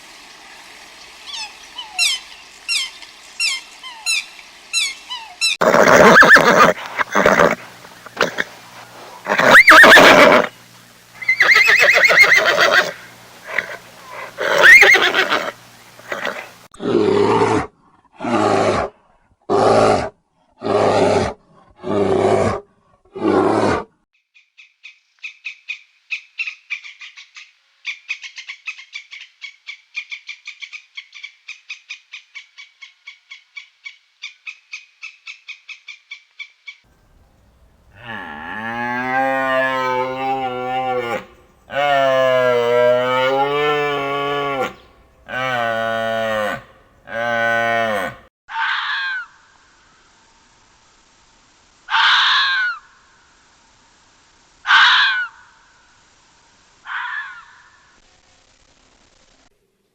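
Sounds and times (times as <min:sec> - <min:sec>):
loud rough animal calls: 0:01.3 - 0:10.6, 0:11.2 - 0:23.9, 0:37.1 - 0:49.4, 0:51.9 - 0:52.9, 0:54.7 - 0:55.5, 0:56.8 - 0:58.0
cow mooing: 0:37.8 - 0:48.3.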